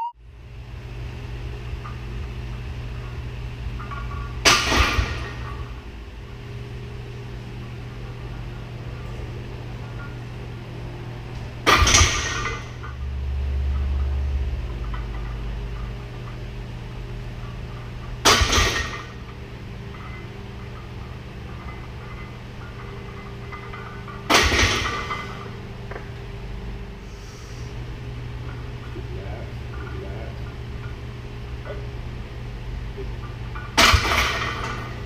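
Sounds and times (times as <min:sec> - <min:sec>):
low hum: 0:00.0 - 0:35.0
barbell clanging against steel rack: 0:11.6 - 0:13.0, 0:18.2 - 0:26.0.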